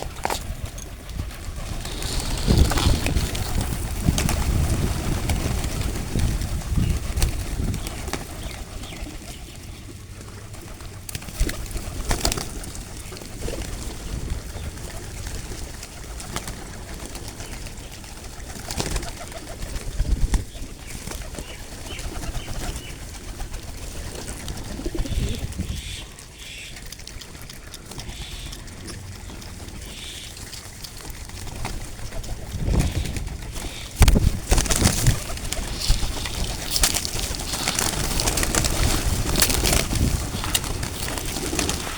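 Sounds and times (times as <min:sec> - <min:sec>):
wing flaps: 0:00.0 - 0:08.6, 0:30.4 - 0:41.9
pigeons cooing: 0:00.0 - 0:41.9.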